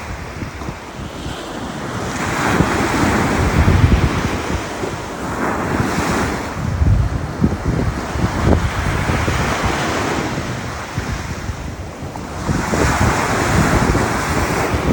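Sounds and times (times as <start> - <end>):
ocean surf washing ashore: 0.0 - 14.9
wind buffeting microphone: 0.0 - 14.9.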